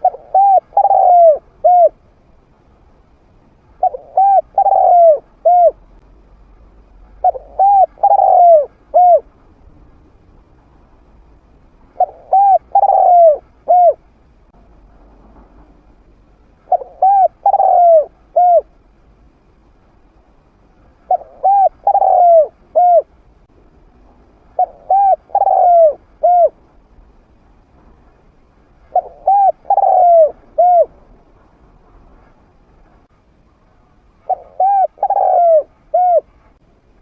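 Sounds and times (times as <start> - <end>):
dove cooing: 0.0 - 2.0, 3.8 - 5.8, 7.2 - 9.3, 12.0 - 14.0, 16.7 - 18.8, 21.1 - 23.1, 24.6 - 26.6, 28.9 - 31.0, 34.3 - 36.4.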